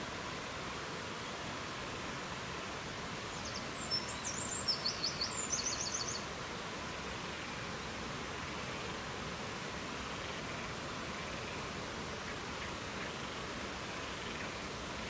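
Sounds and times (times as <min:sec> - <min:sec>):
rushing outdoor noise: 0:00.0 - 0:15.0
songbird singing trills: 0:03.3 - 0:06.3.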